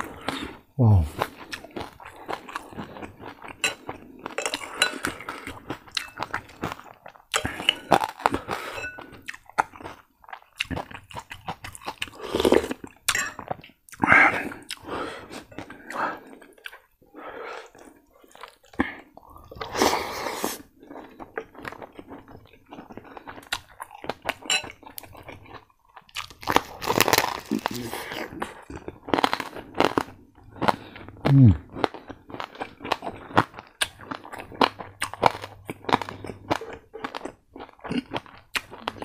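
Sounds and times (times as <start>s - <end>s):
spoon clinking against a bowl: 8.7s - 9.0s, 13.1s - 13.4s, 24.5s - 24.8s
crunchy chewing: 20.5s - 39.0s.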